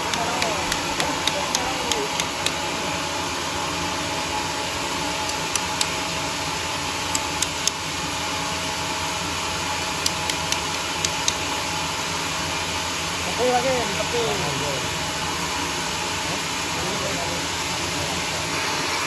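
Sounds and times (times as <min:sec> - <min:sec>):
sharp short ticks: 0:00.0 - 0:02.6, 0:05.3 - 0:06.0, 0:07.1 - 0:07.8, 0:10.0 - 0:11.4
sawmill running: 0:00.0 - 0:19.0.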